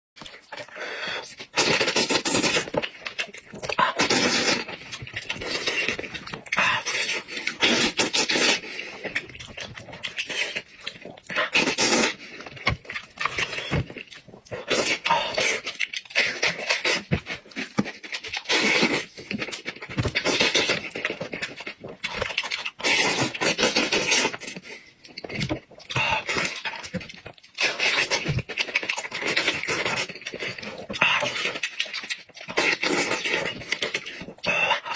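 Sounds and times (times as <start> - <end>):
person chewing and smacking: 0.2 - 34.9.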